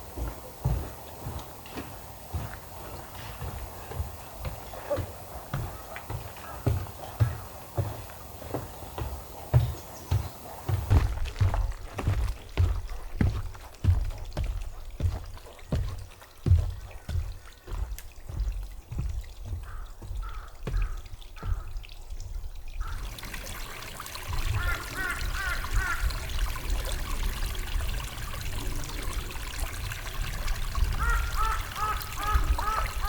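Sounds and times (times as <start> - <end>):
footsteps on snow: 0.0 - 20.9.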